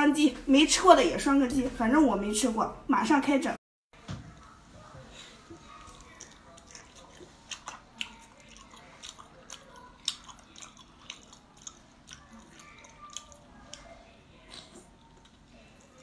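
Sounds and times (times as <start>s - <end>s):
person chewing with wet smacks: 5.4s - 16.0s.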